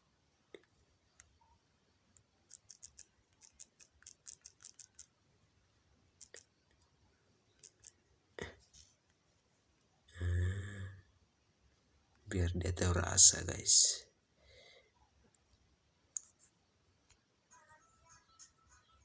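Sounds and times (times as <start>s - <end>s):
fingers tapping phone touchscreen: 2.5s - 5.1s, 6.2s - 6.8s, 7.5s - 8.0s.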